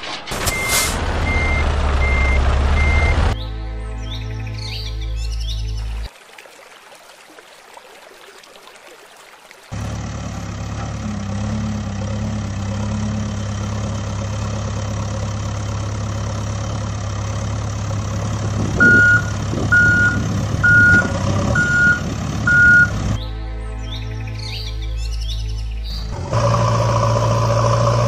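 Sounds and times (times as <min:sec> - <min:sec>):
vehicle engine running: 0:00.0 - 0:03.4, 0:09.8 - 0:23.2, 0:26.0 - 0:28.0
high reversing beeps: 0:00.4 - 0:03.3, 0:18.8 - 0:23.0.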